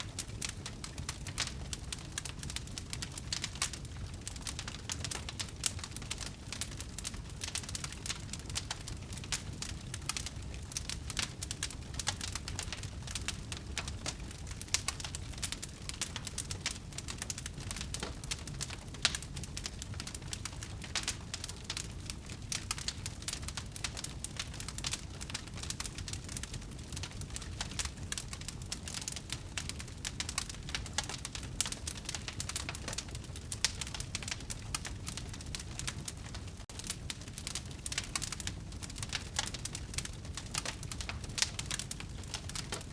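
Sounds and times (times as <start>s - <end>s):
low rumble of flames: 0.0s - 42.9s
wood fire crackling: 0.0s - 42.9s.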